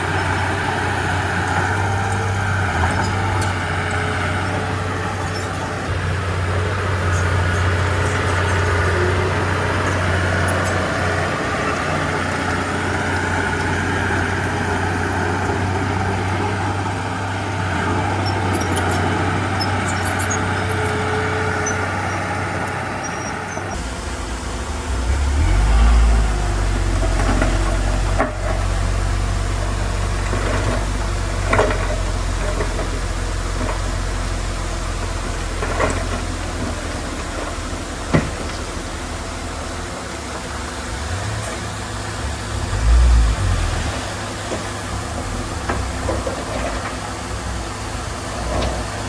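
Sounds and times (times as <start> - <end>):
heavy machinery diesel engine: 0.0 - 49.0.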